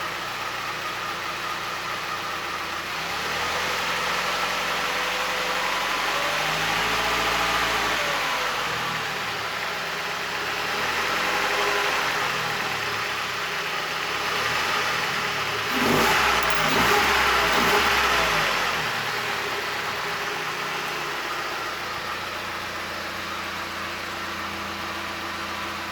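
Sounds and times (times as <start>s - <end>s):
car engine revving: 14.1s - 21.1s.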